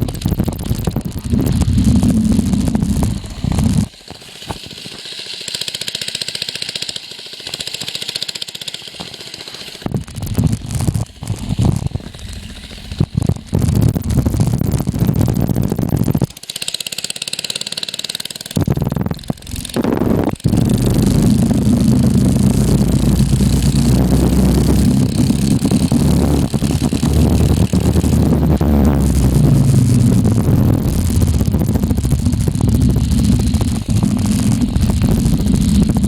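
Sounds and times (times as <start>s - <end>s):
mini bike engine running: 0.0s - 36.0s.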